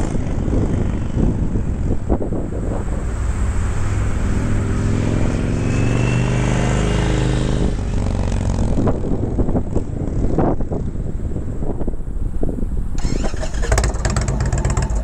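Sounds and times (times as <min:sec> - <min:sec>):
motorcycle engine revving: 0:03.8 - 0:09.4, 0:13.0 - 0:15.0.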